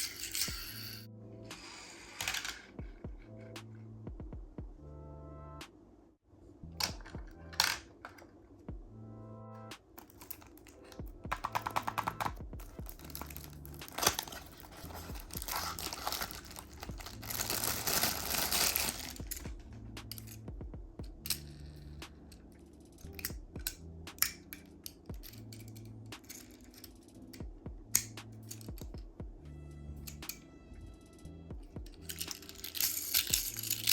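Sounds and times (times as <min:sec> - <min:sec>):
toy cars clicking and tapping: 0:00.0 - 0:01.0, 0:01.6 - 0:02.8, 0:10.0 - 0:20.4, 0:21.2 - 0:27.2, 0:28.0 - 0:28.9, 0:31.9 - 0:33.9
packaging crinkling and tearing: 0:11.6 - 0:19.4.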